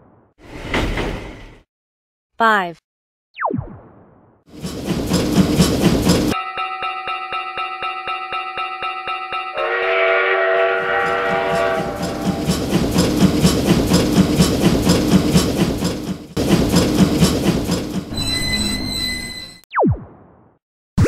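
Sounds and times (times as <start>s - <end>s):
train wheels clickety-clack: 4.5s - 6.4s, 10.8s - 18.3s
railroad crossing bell ringing: 6.3s - 12.4s
train horn: 9.6s - 12.4s.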